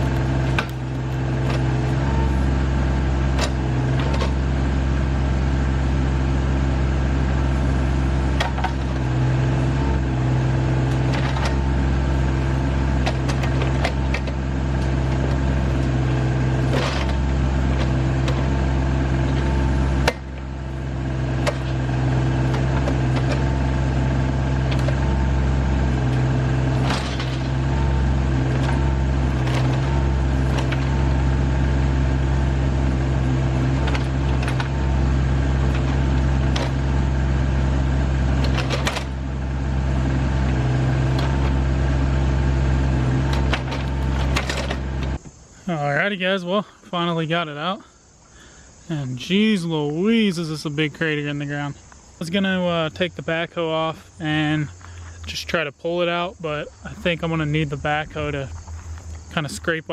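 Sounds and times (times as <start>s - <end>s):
backhoe bucket knocks and clanks: 0.0s - 2.3s, 3.2s - 4.5s, 8.2s - 9.2s, 10.8s - 45.3s
tractor diesel engine running: 0.0s - 59.9s.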